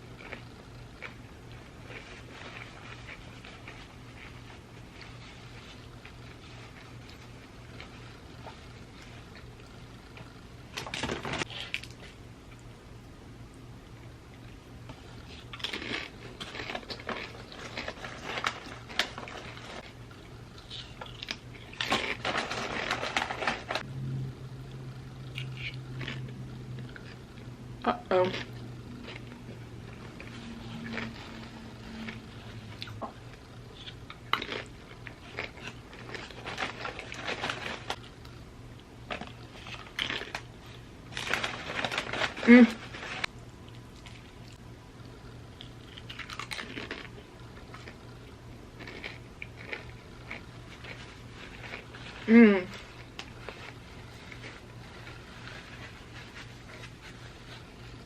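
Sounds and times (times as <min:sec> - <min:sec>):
chips crunching while chewed: 0:00.1 - 0:04.4, 0:15.0 - 0:23.9, 0:25.2 - 0:27.5, 0:28.2 - 0:56.0.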